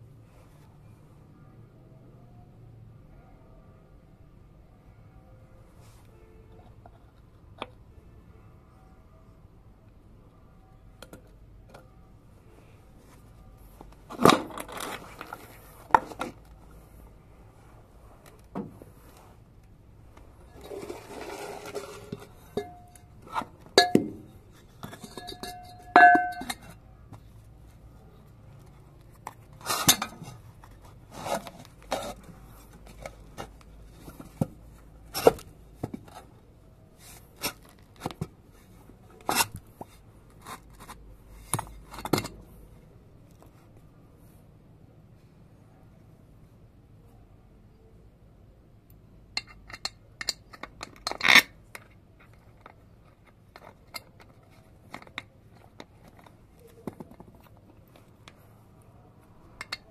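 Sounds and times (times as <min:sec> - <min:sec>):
metal scraping and rattling: 0:20.5 - 0:26.8
metal parts clinking: 0:24.8 - 0:26.8, 0:49.4 - 0:51.6.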